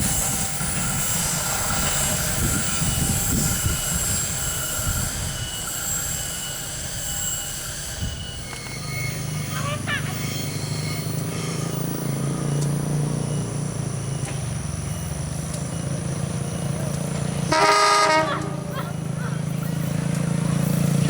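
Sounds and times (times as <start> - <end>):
diesel locomotive engine drone: 0.0 - 21.0
train horn blast: 17.4 - 19.0.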